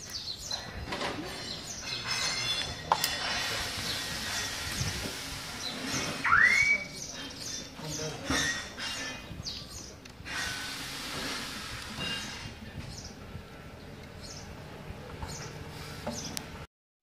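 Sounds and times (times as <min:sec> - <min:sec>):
small birds chirping: 0:00.0 - 0:10.2, 0:12.0 - 0:16.6
loud rising whistled note: 0:06.0 - 0:07.0.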